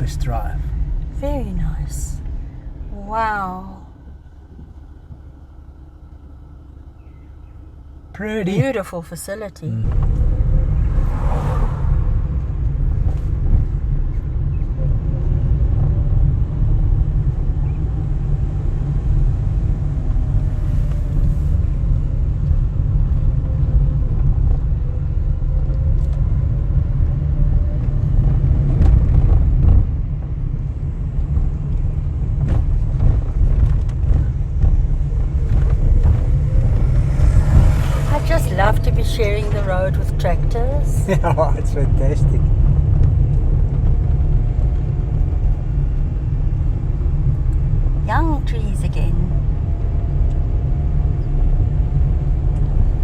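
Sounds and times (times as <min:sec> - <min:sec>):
car engine and road rumble: 0:00.0 - 0:53.0
faint drifting tone: 0:09.7 - 0:13.2, 0:34.7 - 0:42.4.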